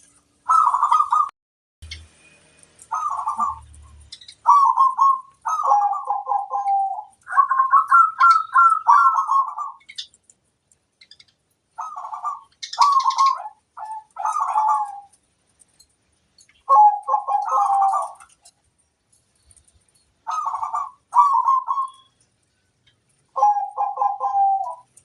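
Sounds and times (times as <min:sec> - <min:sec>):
dove cooing: 0:00.4 - 0:01.3, 0:02.8 - 0:10.0, 0:11.8 - 0:15.2, 0:16.6 - 0:18.5, 0:20.2 - 0:22.1, 0:23.3 - 0:25.0.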